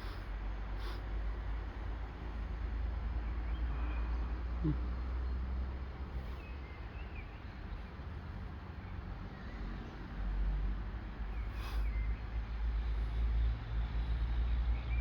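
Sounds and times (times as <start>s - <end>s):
freight train rumble: 0.0s - 3.1s
birds chirping: 11.3s - 12.3s.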